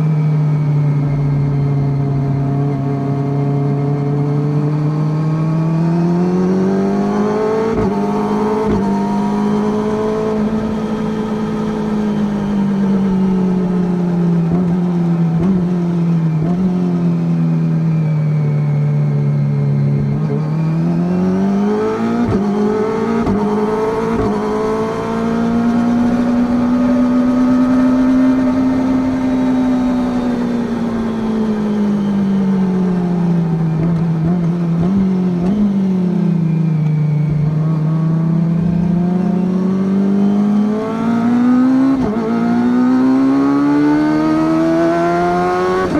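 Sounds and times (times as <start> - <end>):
motorcycle engine running: 7.7 - 21.1.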